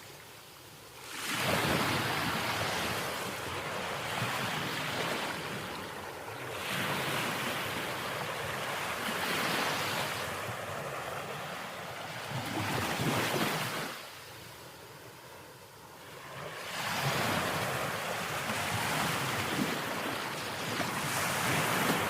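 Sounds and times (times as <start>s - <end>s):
waves breaking: 1.0s - 22.0s
wind on microphone: 16.4s - 22.0s.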